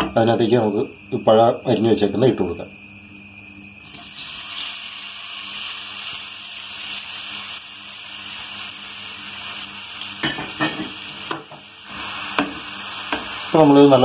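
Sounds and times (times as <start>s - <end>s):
food sizzling in a pan: 3.8s - 14.0s.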